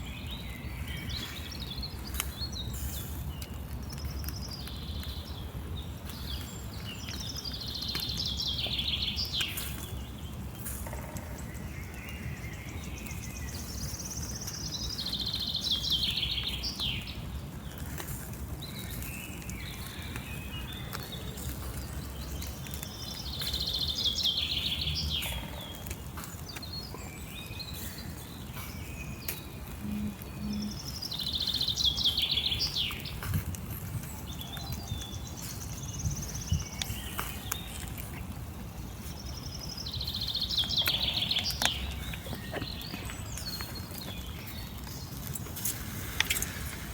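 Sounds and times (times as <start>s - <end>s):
low outdoor rumble: 16.4s - 46.9s
songbird singing trilled phrase: 29.0s - 33.0s.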